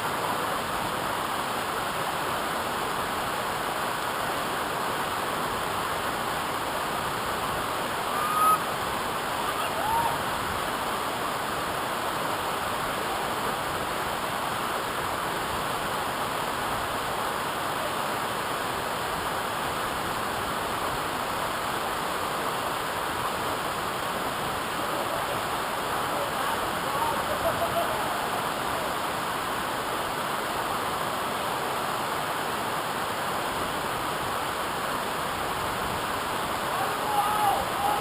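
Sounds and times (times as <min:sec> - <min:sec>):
waterfall roaring: 0:00.0 - 0:38.0
whistle-like notes: 0:08.1 - 0:08.6.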